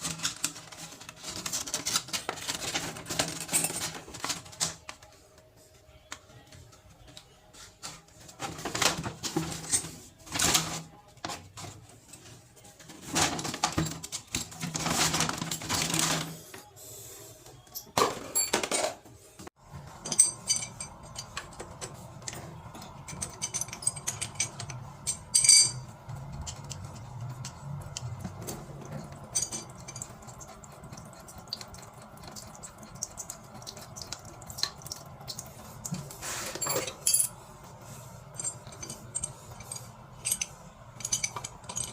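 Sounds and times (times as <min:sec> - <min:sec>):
metal parts clinking: 0:00.0 - 0:04.8, 0:17.7 - 0:19.0, 0:20.0 - 0:30.2, 0:36.4 - 0:37.4, 0:38.3 - 0:41.9
scraping and rustling: 0:00.0 - 0:05.4, 0:35.6 - 0:41.9.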